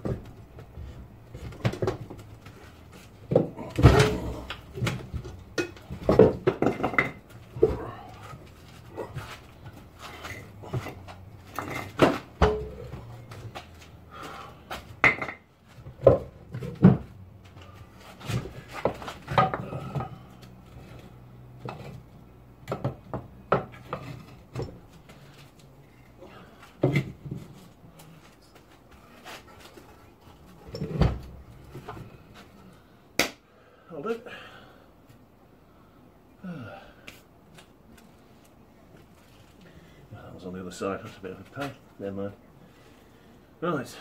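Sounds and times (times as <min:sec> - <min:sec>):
hand tools and metal parts clinking: 0:02.1 - 0:14.0.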